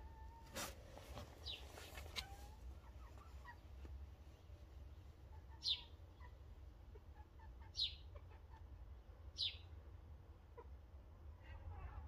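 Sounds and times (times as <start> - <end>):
bird chirping: 1.4 - 6.4, 7.2 - 8.6, 9.3 - 9.8.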